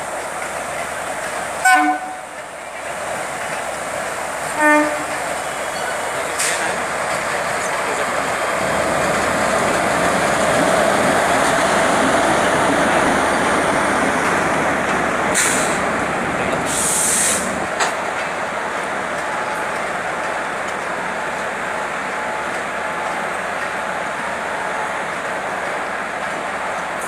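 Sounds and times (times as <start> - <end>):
train wheels rumbling on rails: 0.0 - 27.0
short hisses: 15.4 - 15.9, 16.7 - 17.6.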